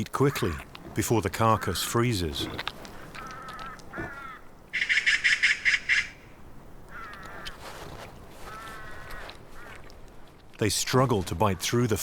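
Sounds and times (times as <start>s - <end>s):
ravens calling: 0.0s - 7.7s, 8.4s - 9.9s.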